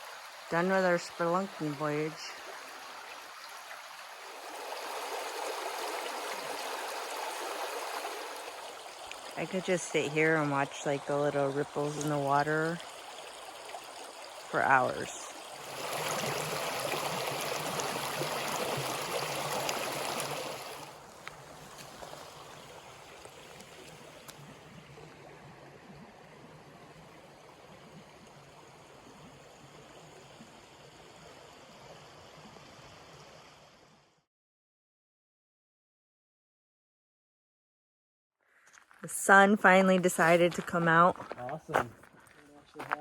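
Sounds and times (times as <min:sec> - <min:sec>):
creek water flowing over rocks: 0:00.0 - 0:34.0.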